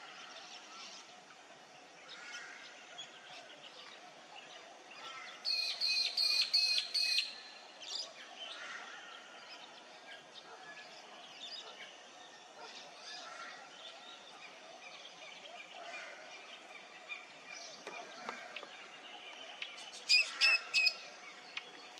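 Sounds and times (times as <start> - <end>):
birds chirping: 0.0 - 21.9.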